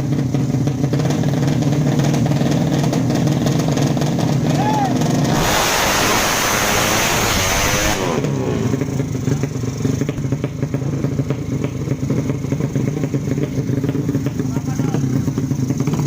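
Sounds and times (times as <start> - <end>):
motorcycle engine running: 0.0 - 16.0
loud rush of noise: 4.6 - 8.9.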